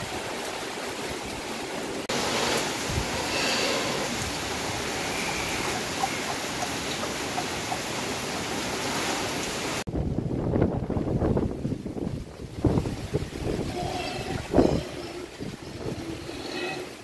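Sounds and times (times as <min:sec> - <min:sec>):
heavy rain falling: 0:00.0 - 0:17.0
wind rumble on microphone: 0:02.6 - 0:03.5, 0:09.9 - 0:17.0.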